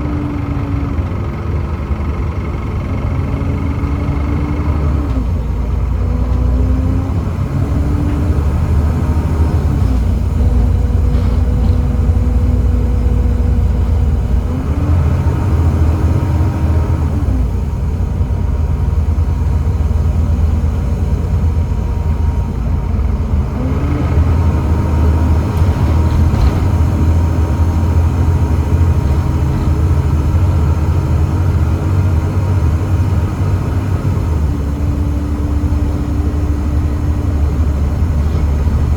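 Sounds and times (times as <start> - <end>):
bus engine rumbling: 0.0 - 38.9
gearbox whining: 21.3 - 32.6.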